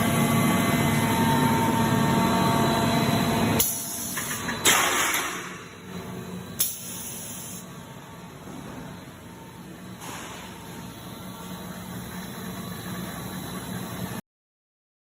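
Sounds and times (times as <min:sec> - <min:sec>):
production line machinery humming: 0:00.0 - 0:14.2
air hiss: 0:06.6 - 0:07.6.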